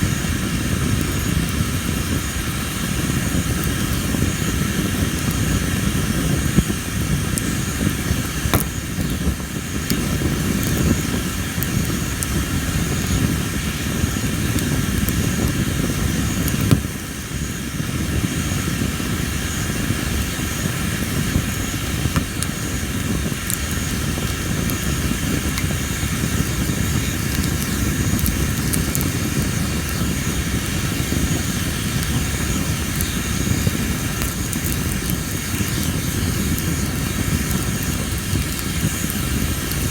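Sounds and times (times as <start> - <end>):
campfire flames rumbling: 0.0 - 39.9
wood crackling and popping: 0.0 - 39.9
insects chirping: 18.4 - 39.9.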